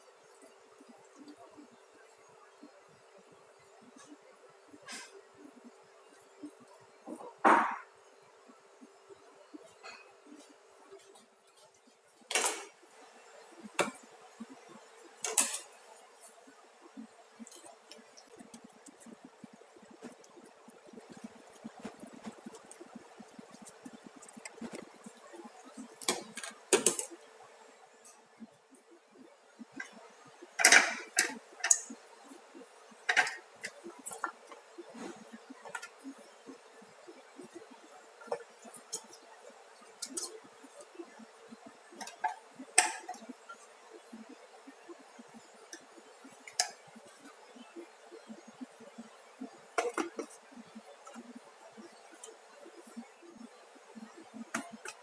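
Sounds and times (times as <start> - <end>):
dishes and utensils clattering: 15.2 - 15.8, 30.6 - 31.9, 33.1 - 34.4.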